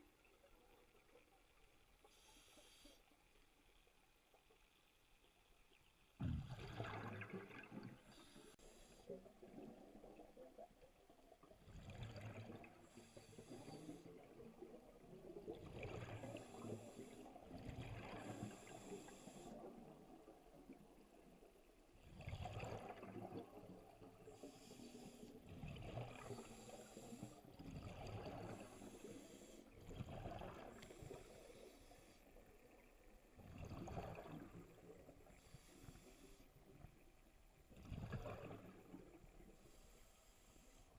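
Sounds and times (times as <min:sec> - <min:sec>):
regulator hiss on inhale: 0:02.0 - 0:03.4, 0:08.1 - 0:09.2, 0:12.8 - 0:14.3, 0:16.3 - 0:17.4, 0:18.0 - 0:19.8, 0:24.3 - 0:25.5, 0:26.2 - 0:27.6, 0:28.3 - 0:29.8, 0:30.5 - 0:32.6, 0:35.2 - 0:36.9, 0:39.4 - 0:40.9
exhaled bubbles rushing: 0:06.2 - 0:08.2, 0:33.4 - 0:34.9, 0:37.8 - 0:39.2.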